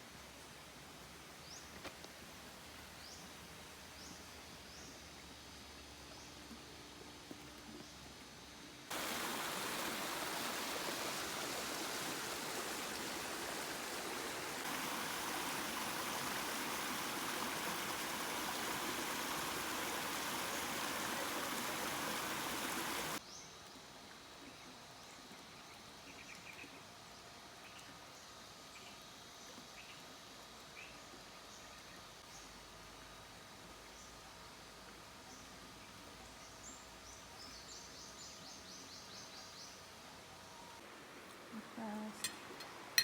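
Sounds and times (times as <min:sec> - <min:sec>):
rushing water: 0:08.9 - 0:23.2.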